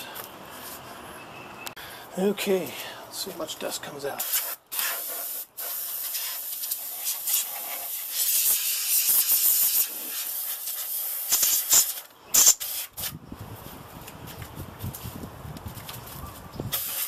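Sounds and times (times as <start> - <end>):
compressed air spraying: 4.2 - 13.2, 16.7 - 17.0.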